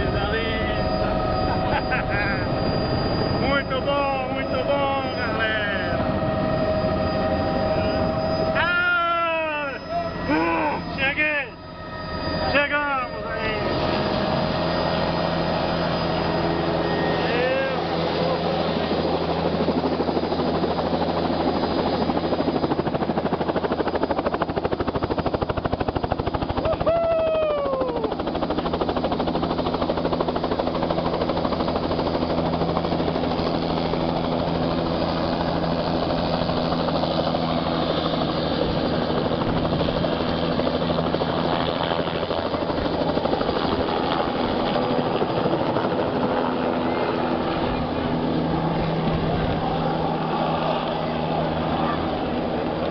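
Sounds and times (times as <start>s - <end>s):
helicopter rotor and engine: 0.0s - 52.9s
falling tone: 0.6s - 17.8s.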